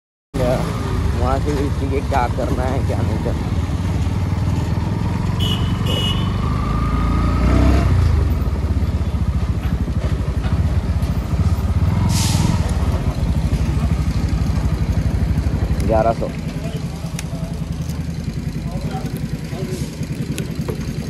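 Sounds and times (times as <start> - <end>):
motorcycle engine running: 0.4 - 21.0
brief hiss: 12.1 - 12.7.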